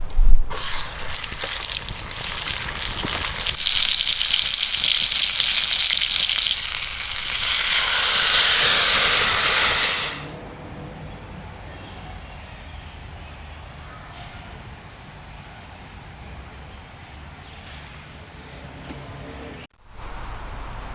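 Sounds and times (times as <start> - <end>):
food sizzling in a skillet: 0.5 - 10.4.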